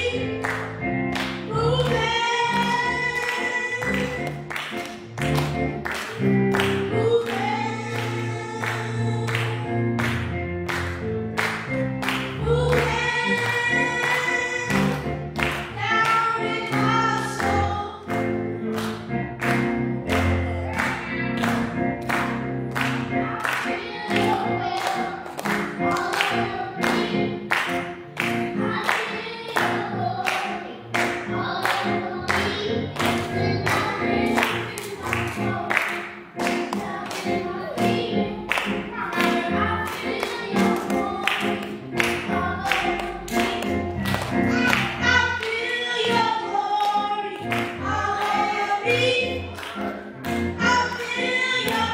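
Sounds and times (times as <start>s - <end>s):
group singing worship song: 0.0s - 4.8s, 12.1s - 18.0s, 19.5s - 51.9s
band playing: 18.1s - 51.9s.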